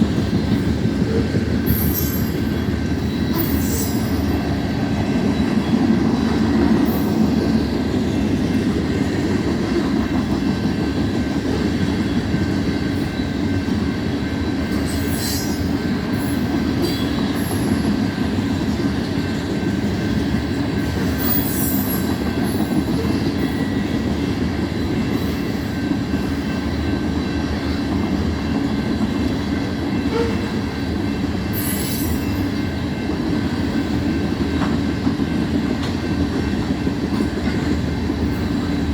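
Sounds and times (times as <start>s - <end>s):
train wheels rumbling on rail: 0.0s - 38.9s
wheel squeal: 21.2s - 22.2s.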